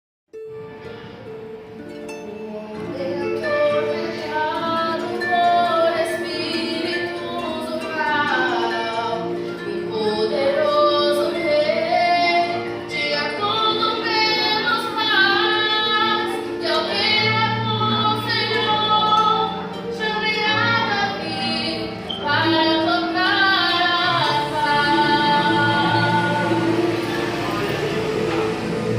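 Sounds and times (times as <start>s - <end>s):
instrumental accompaniment: 0.3s - 28.9s
woman singing a hymn: 2.3s - 28.4s.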